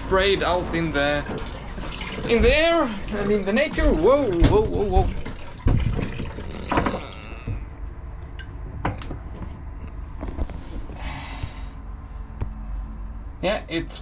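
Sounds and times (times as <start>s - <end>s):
liquid splashing into container: 1.2s - 7.6s
sharp knocks: 3.7s - 7.7s.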